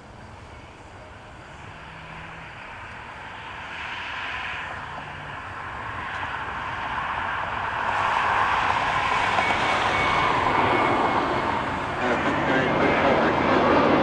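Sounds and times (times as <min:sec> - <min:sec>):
jet aircraft engines: 0:00.0 - 0:14.0
faint thin whine: 0:09.4 - 0:14.0.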